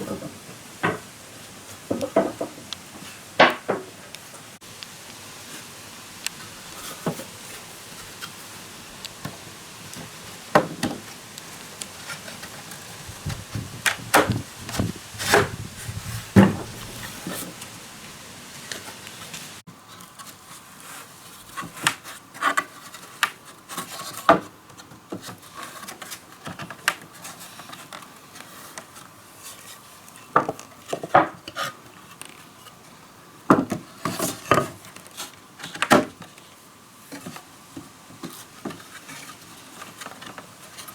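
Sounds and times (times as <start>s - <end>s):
hard objects knocking and clattering: 1.9s - 2.7s.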